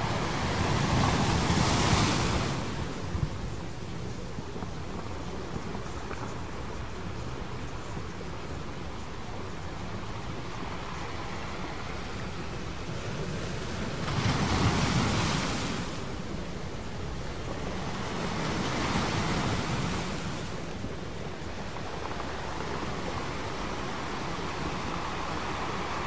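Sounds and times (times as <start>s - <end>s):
ocean waves washing in: 9.8s - 26.0s.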